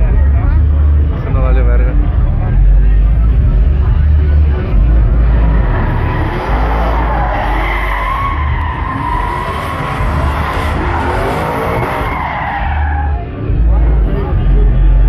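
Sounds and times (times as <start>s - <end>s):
engine running hard: 0.0s - 15.0s
truck tires squealing: 5.1s - 13.4s.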